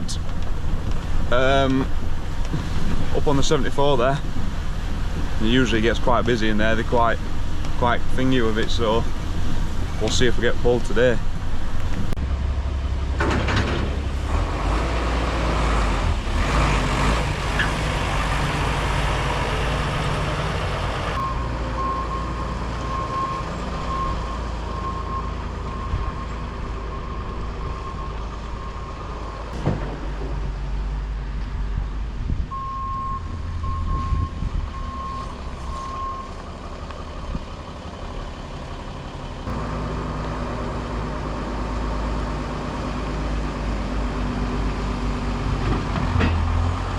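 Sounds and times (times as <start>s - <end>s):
diesel vehicle running: 0.0s - 46.9s
reversing alarm beeping: 21.2s - 29.2s, 32.5s - 36.4s.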